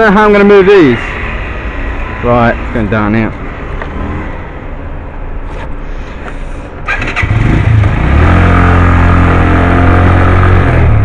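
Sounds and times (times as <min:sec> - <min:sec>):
motorcycle engine revving: 0:06.8 - 0:11.0.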